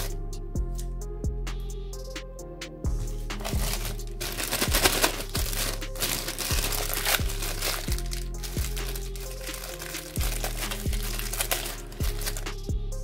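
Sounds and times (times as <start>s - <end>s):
background music with beat: 0.0s - 13.0s
plastic bag crinkling: 3.4s - 12.5s.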